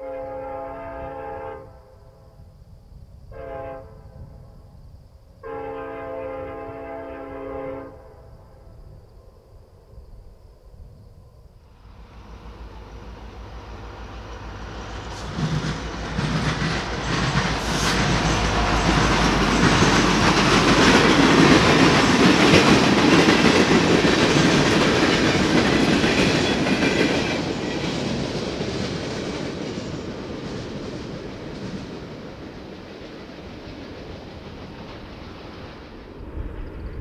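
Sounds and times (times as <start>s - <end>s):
diesel locomotive engine droning: 5.4s - 37.0s
train wheels clattering on rails: 14.2s - 36.2s.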